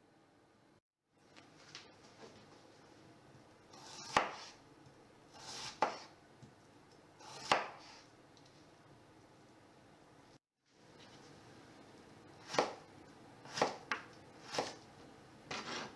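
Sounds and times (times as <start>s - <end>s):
knife slicing vegetable: 3.7s - 4.6s, 5.3s - 6.2s, 7.2s - 8.1s, 12.4s - 14.9s.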